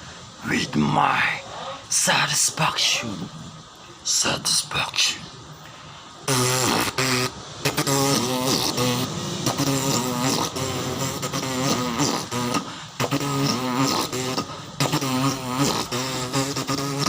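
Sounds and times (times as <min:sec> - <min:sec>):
person beatboxing: 0:06.2 - 0:17.0.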